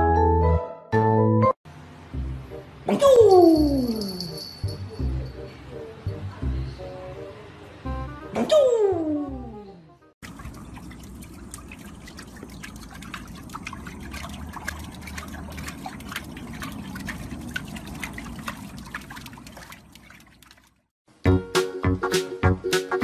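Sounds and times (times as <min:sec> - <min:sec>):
water splashing in paddling pool: 0:10.2 - 0:20.9.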